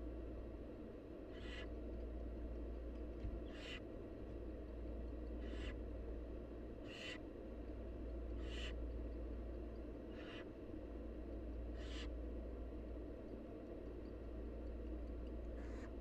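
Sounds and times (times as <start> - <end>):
steady low hum: 0.0 - 16.0
owl nestlings hissing calls: 1.3 - 1.7, 3.4 - 3.8, 5.4 - 5.8, 6.8 - 7.3, 8.4 - 8.8, 10.1 - 10.5, 11.7 - 12.2, 15.6 - 15.9.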